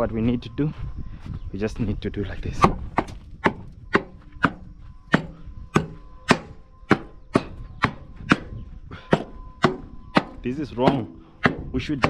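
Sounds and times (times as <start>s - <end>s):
knocks on truck trailer doors: 9.1s - 12.0s.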